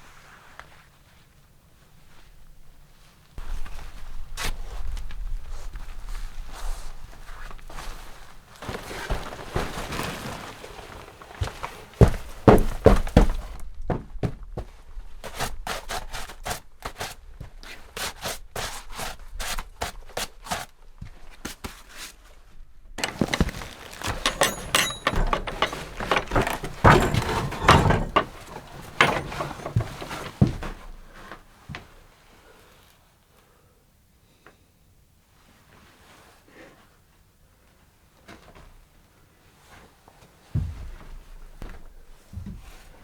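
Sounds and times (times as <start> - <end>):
sharp knocks and thuds: 23.0 - 31.0.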